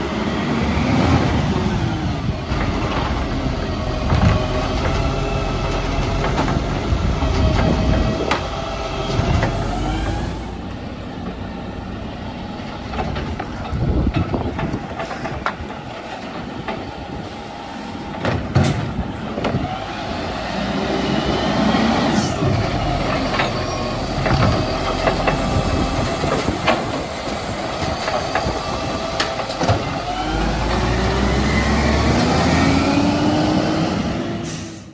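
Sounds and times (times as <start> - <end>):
wind buffeting microphone: 0.0 - 10.6, 12.8 - 34.4
garbage truck engine running: 0.0 - 34.9
metal clanks and knocks: 4.0 - 8.5, 12.8 - 17.0, 18.1 - 19.6, 22.4 - 30.0.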